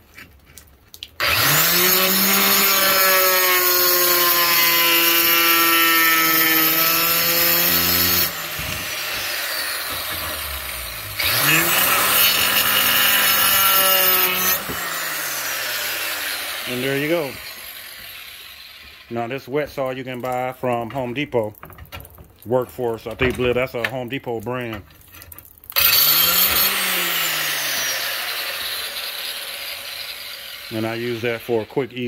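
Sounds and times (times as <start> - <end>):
electric tile saw whining: 1.2 - 19.4, 25.8 - 32.0
saw cutting ceramic tile: 1.2 - 19.8, 25.8 - 32.0.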